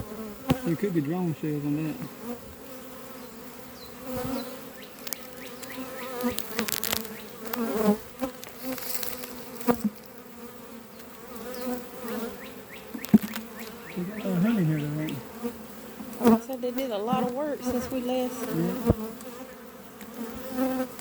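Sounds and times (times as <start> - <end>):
bees buzzing: 0.0 - 21.0
single bees whining past: 0.0 - 21.0.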